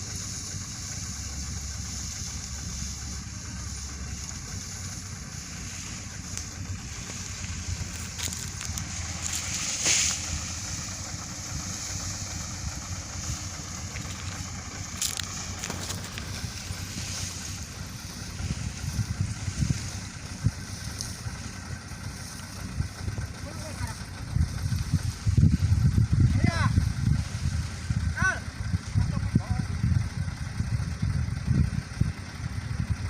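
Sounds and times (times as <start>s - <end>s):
truck engine rumbling: 0.0s - 33.0s
wind noise on microphone: 17.6s - 20.8s, 24.2s - 33.0s.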